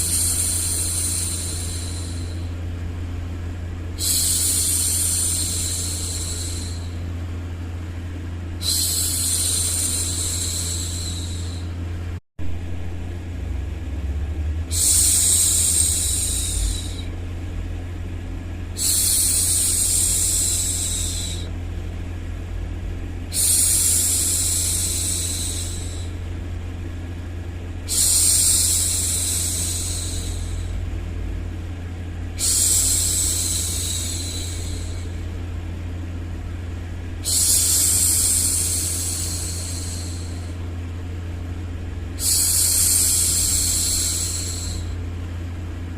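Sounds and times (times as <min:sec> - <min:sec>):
woman hushing shhh: 0:00.0 - 0:02.6, 0:04.0 - 0:07.2, 0:08.6 - 0:11.8, 0:14.7 - 0:17.2, 0:18.8 - 0:21.6, 0:23.3 - 0:26.2, 0:27.9 - 0:30.8, 0:32.2 - 0:35.3, 0:37.2 - 0:40.7, 0:42.2 - 0:45.0
steady low hum: 0:00.0 - 0:45.9.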